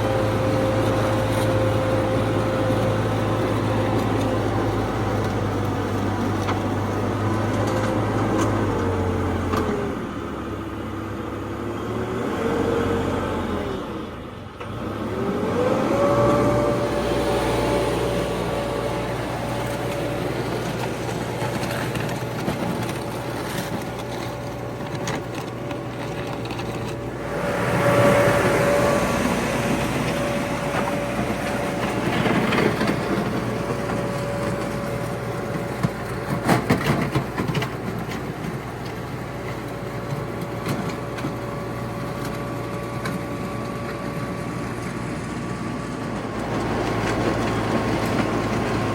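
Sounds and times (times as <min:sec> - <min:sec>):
bulldozer diesel engine whining: 0:00.0 - 0:48.9
steel tracks clanking: 0:16.0 - 0:41.3.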